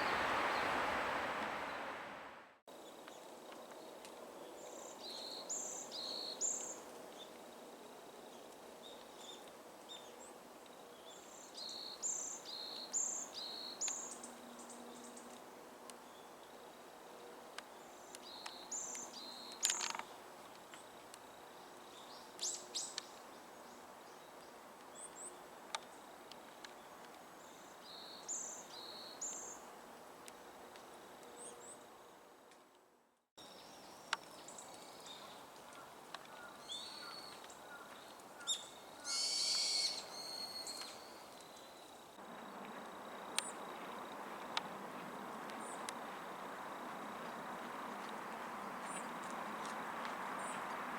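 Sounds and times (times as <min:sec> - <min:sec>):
small birds calling: 0:34.4 - 0:42.0.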